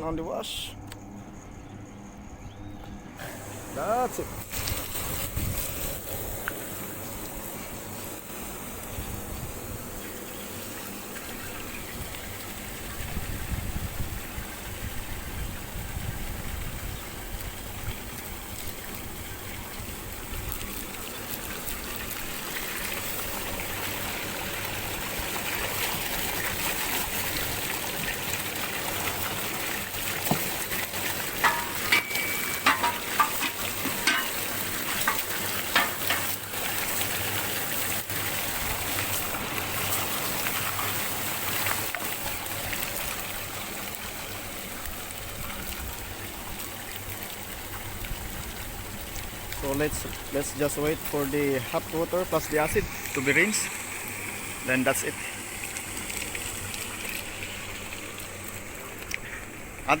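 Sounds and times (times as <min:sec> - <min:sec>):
water gushing and spraying: 0:03.2 - 1:00.0
sharp clicks and knocks: 0:31.4 - 0:34.4.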